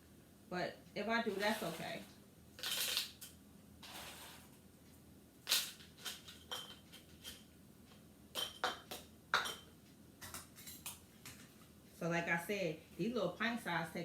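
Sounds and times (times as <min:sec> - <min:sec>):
rustling scrapes: 0:01.3 - 0:02.1, 0:03.8 - 0:04.6
glass jars clinking: 0:06.0 - 0:07.4, 0:08.4 - 0:09.7.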